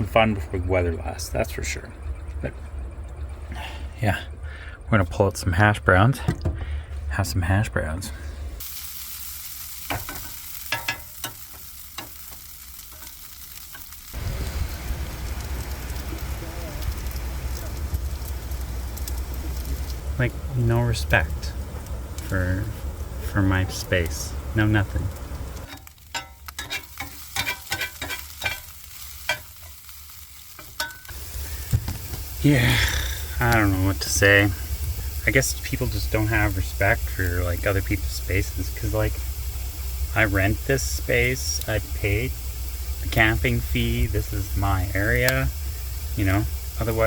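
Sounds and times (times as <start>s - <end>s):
low rumble: 0.0s - 8.6s, 14.2s - 25.7s
utensil scraping in frying pan: 8.6s - 14.9s, 25.6s - 32.4s
food frying: 8.6s - 47.0s
hash browns sizzling in a pan: 8.6s - 47.0s.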